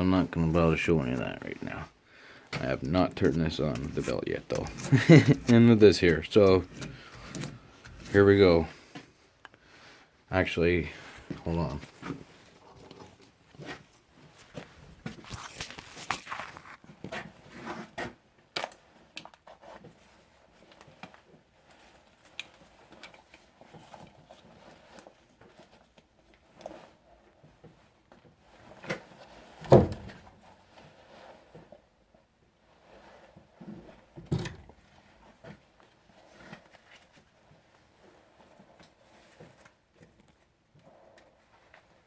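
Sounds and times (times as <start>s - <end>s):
rustling: 10.9s - 42.0s.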